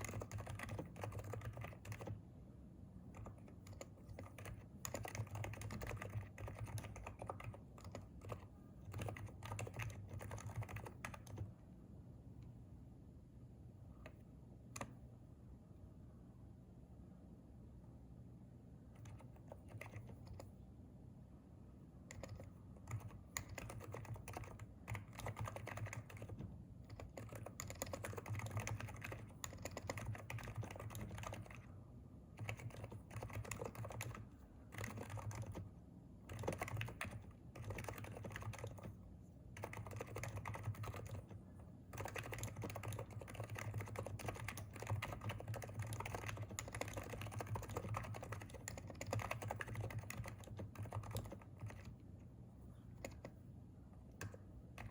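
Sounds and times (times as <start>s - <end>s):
keyboard typing: 0.0s - 2.2s, 3.1s - 11.5s, 14.0s - 15.0s, 19.0s - 20.5s, 22.1s - 31.7s, 32.3s - 52.0s, 52.8s - 53.4s, 54.1s - 54.9s.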